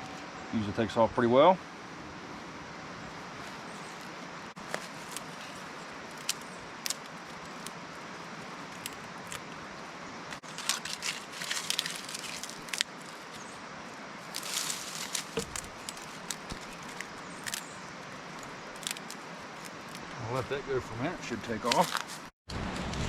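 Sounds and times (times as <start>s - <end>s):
steady outdoor hiss: 0.0s - 23.0s
fire crackling and snapping: 3.8s - 13.5s, 14.2s - 20.2s, 21.6s - 22.3s.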